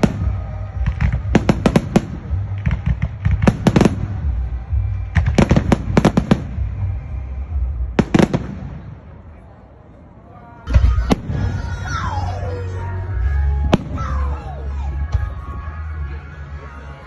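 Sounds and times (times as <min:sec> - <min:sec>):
fireworks cracking: 0:00.0 - 0:07.0.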